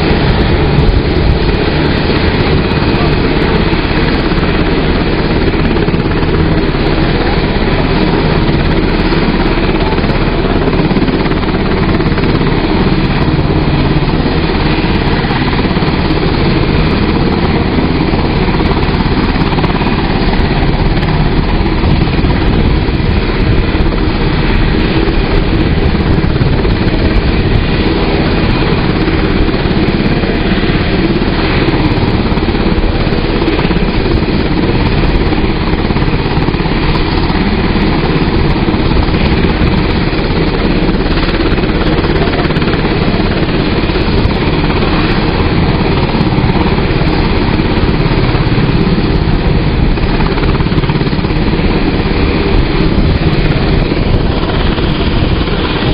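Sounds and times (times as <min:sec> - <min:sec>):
helicopter engines and rotor running: 0:00.0 - 0:55.9.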